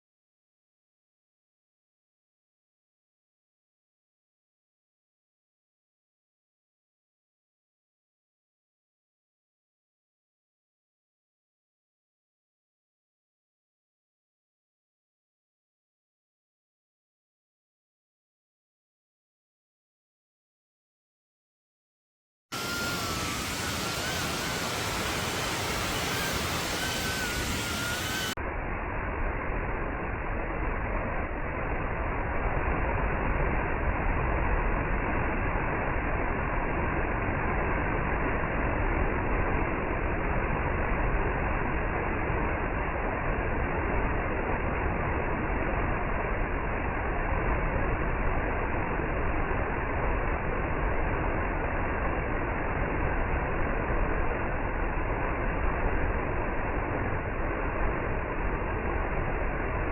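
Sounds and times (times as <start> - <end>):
faint wavering whistle: 22.6 - 28.4
waterfall roaring: 22.6 - 28.4.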